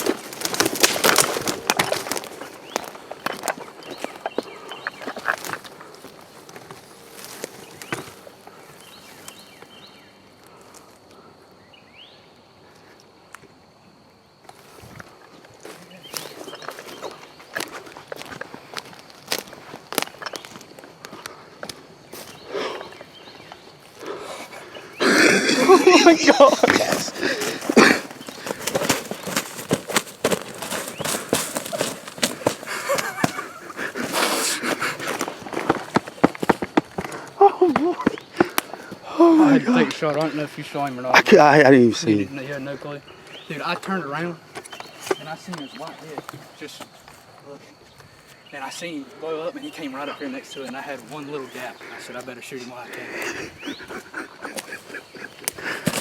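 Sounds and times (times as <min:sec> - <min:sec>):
crackling knocks in dry brush: 0:00.0 - 0:08.3, 0:15.7 - 0:22.4, 0:26.2 - 0:39.0, 0:55.4 - 0:56.0
rustling: 0:00.0 - 0:08.4, 0:22.2 - 0:39.0, 0:54.1 - 0:56.0
rustles in leaf litter: 0:25.7 - 0:34.6.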